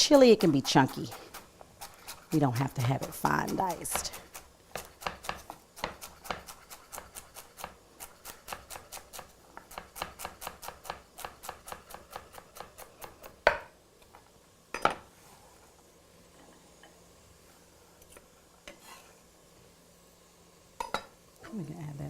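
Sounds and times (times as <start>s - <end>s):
knife chopping on cutting board: 0.3s - 13.7s.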